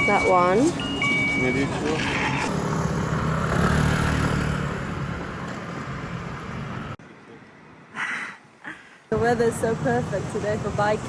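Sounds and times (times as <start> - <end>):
street traffic noise: 0.0 - 11.0
vehicle engine rumble passing: 1.8 - 7.0.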